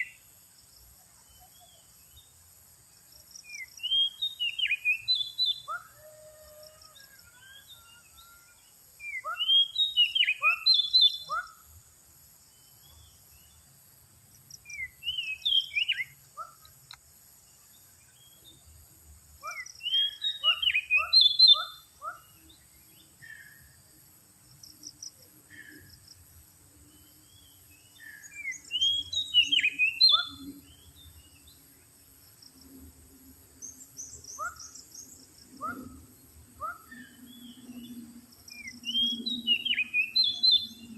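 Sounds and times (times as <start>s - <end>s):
bird singing whistled phrases: 3.5s - 5.9s, 7.2s - 11.5s, 14.7s - 16.2s, 19.5s - 21.8s, 28.2s - 30.5s, 38.5s - 40.9s.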